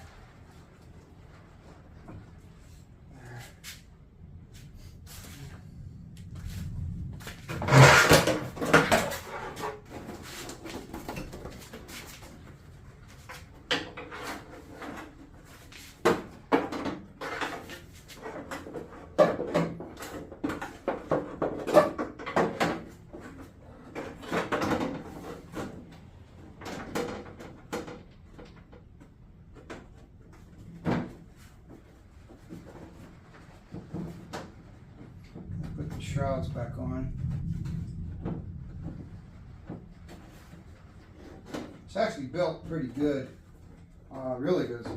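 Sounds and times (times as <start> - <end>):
plastic covers clunking and rattling: 7.5 - 35.5.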